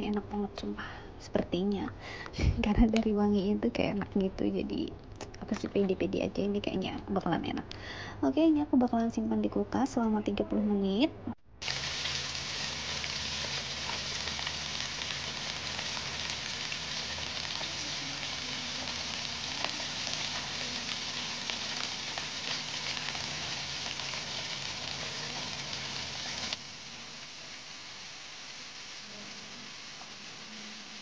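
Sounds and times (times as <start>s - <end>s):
chicken sizzling in oil: 11.6s - 31.0s.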